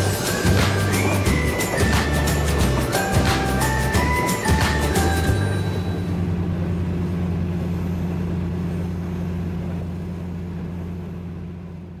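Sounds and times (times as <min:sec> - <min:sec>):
train engine drone: 0:00.0 - 0:12.0.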